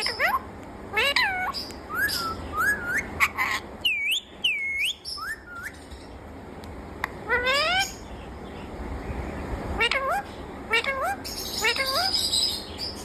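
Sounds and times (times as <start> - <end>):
parakeet whistled calls: 1.0 - 6.1, 7.3 - 8.1, 9.8 - 13.0.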